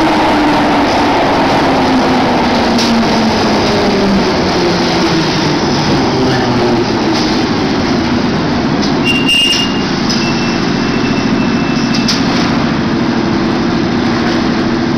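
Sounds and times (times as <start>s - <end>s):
train rumble with low hum: 0.0s - 14.9s
thin high whistle: 9.0s - 12.0s.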